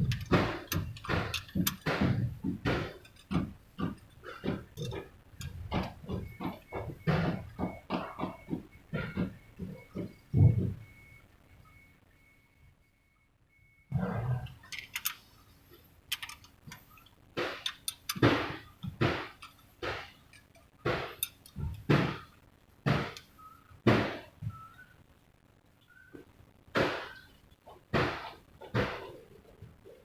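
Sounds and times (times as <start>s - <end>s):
irregular knocks and clanks: 0.0s - 11.2s, 16.1s - 24.7s, 26.2s - 30.0s.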